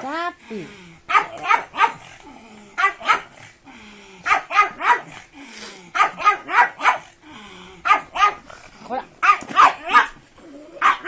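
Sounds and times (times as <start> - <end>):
dog barking: 1.1 - 2.1, 2.8 - 3.4, 4.2 - 5.1, 6.0 - 7.1, 7.8 - 8.4, 9.2 - 10.2, 10.8 - 11.0.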